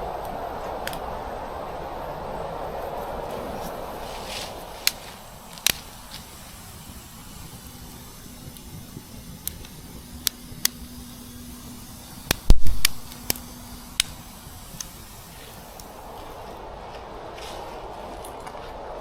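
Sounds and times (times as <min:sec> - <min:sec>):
faint steady hum: 0:00.0 - 0:19.0
sharp clicks: 0:07.4 - 0:15.9.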